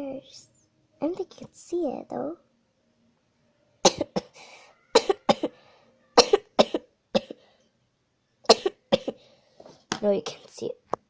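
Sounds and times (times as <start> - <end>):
person coughing: 3.9 - 5.6, 6.2 - 7.4, 8.5 - 9.2.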